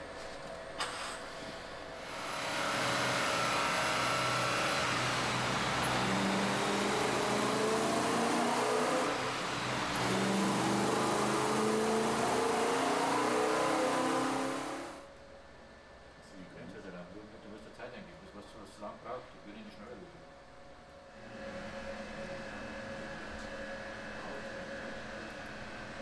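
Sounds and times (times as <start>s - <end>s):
car engine revving: 2.4s - 15.0s.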